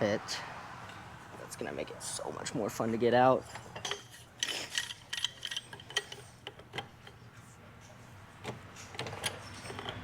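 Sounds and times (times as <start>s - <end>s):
metal tools clicking and clinking: 3.5s - 7.2s, 8.8s - 10.0s.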